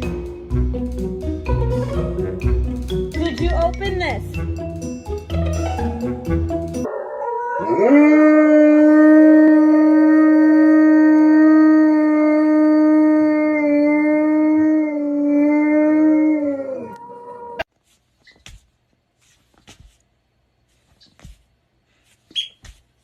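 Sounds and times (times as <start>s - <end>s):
dog howling: 6.9s - 17.7s.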